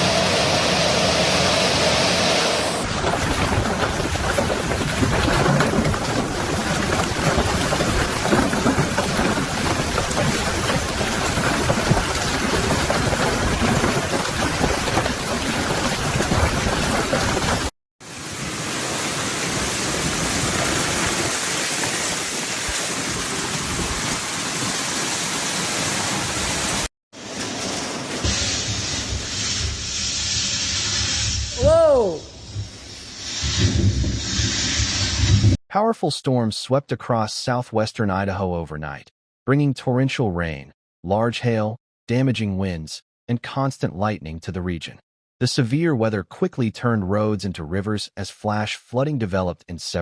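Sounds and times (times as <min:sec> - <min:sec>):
heavy rain pouring: 0:00.0 - 0:32.2.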